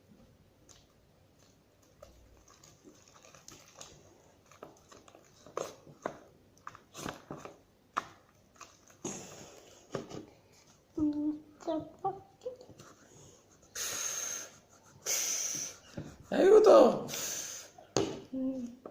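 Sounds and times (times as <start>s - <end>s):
slime squelching: 0.6s - 9.9s.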